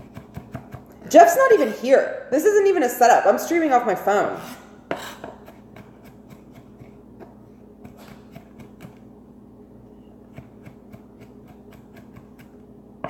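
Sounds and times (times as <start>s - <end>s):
steady low hum: 0.0s - 13.0s
knife tapping on cutting board: 10.3s - 12.6s.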